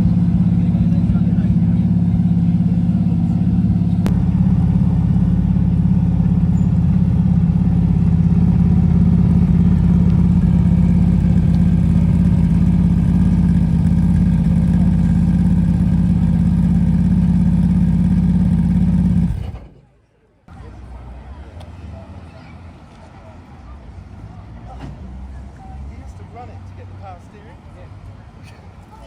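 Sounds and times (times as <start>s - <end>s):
race car engine idling loudly: 0.0s - 19.7s.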